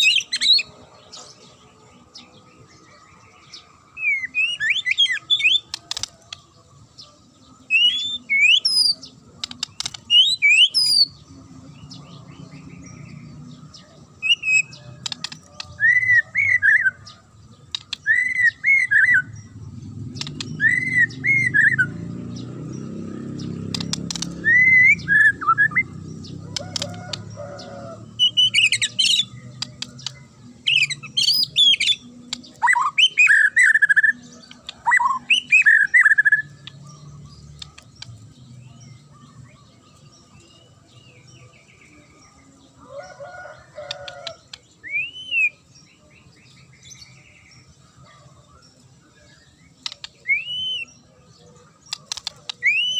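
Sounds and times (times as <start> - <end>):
bird whistling and chirping: 7.7 - 11.2, 17.7 - 19.4, 20.2 - 21.9, 23.7 - 25.9, 28.2 - 37.8, 43.9 - 45.6, 49.8 - 51.0, 52.0 - 52.9.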